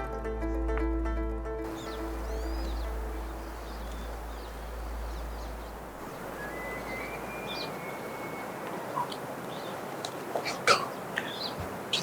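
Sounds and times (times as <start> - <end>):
plucked string music: 0.0 - 6.0
faint high whistling: 1.7 - 9.2
bird chirps: 1.7 - 12.0
wind on microphone: 1.7 - 12.0.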